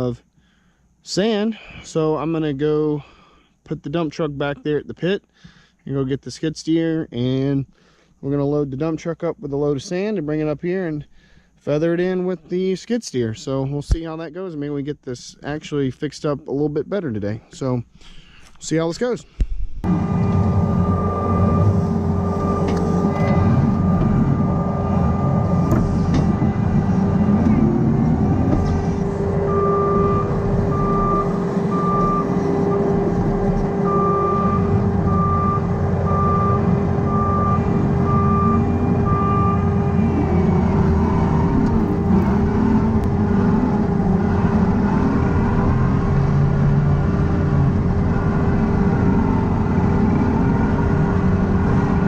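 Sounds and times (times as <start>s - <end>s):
vehicle engine running: 19.8s - 52.0s
reverse alarm beeping: 19.9s - 46.0s.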